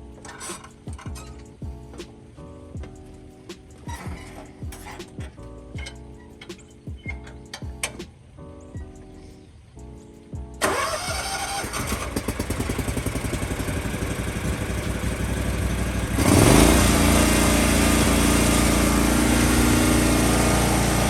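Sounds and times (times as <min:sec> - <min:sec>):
lawn mower engine: 0:10.6 - 0:21.0.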